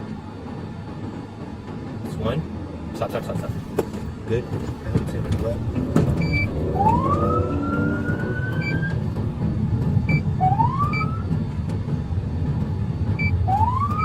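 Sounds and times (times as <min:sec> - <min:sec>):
car rumbling: 0:01.4 - 0:14.0
short beeps: 0:06.2 - 0:06.6, 0:08.1 - 0:08.9
police siren wailing: 0:06.3 - 0:09.0, 0:10.4 - 0:11.3, 0:13.4 - 0:14.0.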